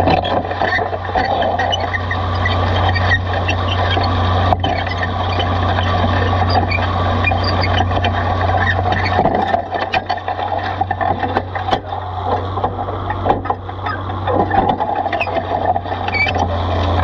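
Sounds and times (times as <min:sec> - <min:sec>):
plow frame knocking: 0:00.0 - 0:17.0
soil scraping over plow: 0:00.0 - 0:17.0
tractor engine under load: 0:00.0 - 0:17.0.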